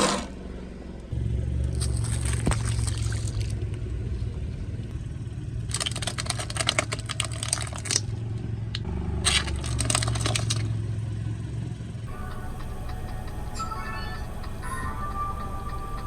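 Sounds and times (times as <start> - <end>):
car engine hum: 0.0 - 16.0
tyre crushing something brittle: 5.7 - 8.1, 9.3 - 10.7.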